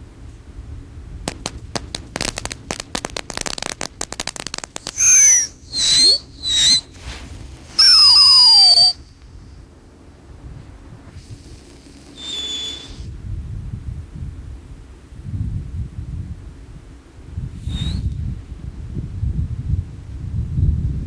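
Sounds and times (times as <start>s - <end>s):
firework crackling: 1.2s - 9.4s, 10.6s - 13.1s
firework whistles: 1.3s - 9.1s, 11.1s - 13.1s, 17.6s - 18.1s.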